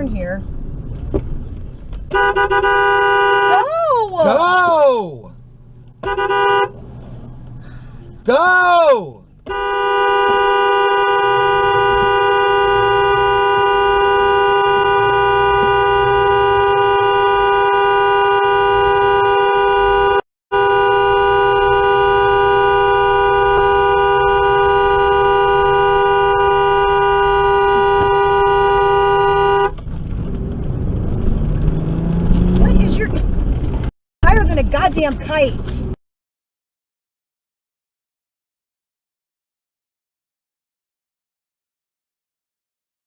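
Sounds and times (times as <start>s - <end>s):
engine and road noise: 0.0s - 36.0s
two-tone car horn blast: 2.1s - 3.6s, 6.0s - 6.8s, 9.4s - 29.8s.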